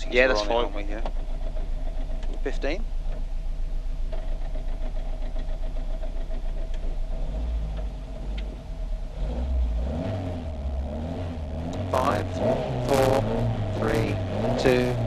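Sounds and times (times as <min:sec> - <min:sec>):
rally car engine idling: 0:00.0 - 0:15.0.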